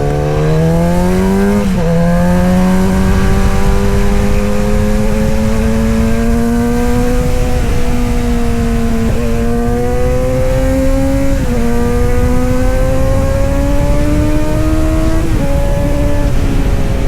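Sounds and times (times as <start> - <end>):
motorcycle engine accelerating: 0.0 - 17.0
wind and road noise: 0.0 - 17.0.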